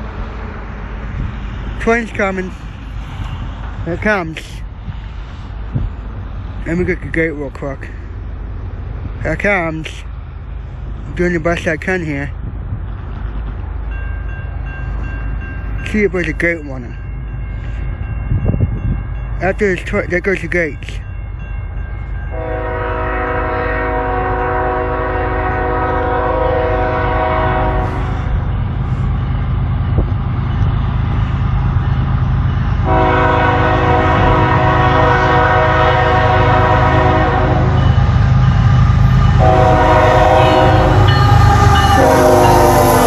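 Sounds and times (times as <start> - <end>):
low diesel rumble of train: 0.0 - 43.0
locomotive air horn blasts: 22.3 - 28.3, 32.8 - 38.0, 39.2 - 43.0.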